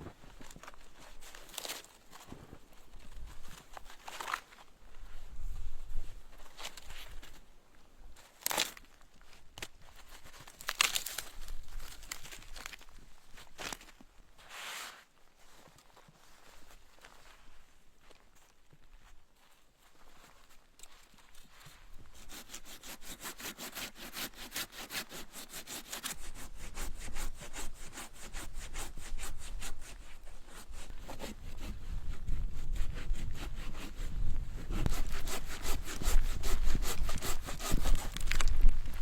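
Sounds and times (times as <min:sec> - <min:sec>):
hand saw cutting wood: 0:22.2 - 0:38.7.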